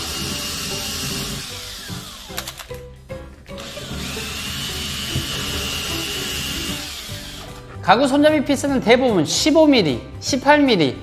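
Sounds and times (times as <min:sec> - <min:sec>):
cordless drill whirring: 0:00.0 - 0:02.7, 0:03.6 - 0:07.6.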